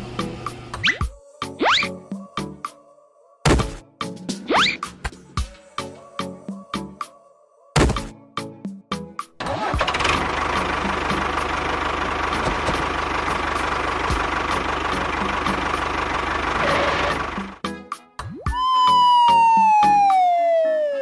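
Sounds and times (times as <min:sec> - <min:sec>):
engine starting and running: 0:09.4 - 0:17.6.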